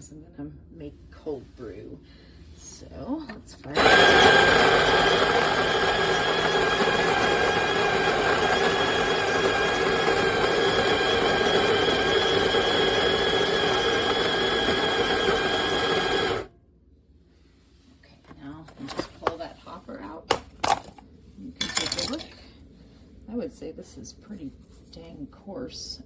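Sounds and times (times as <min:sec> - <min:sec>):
electric coffee grinder grinding beans: 0:03.7 - 0:16.5.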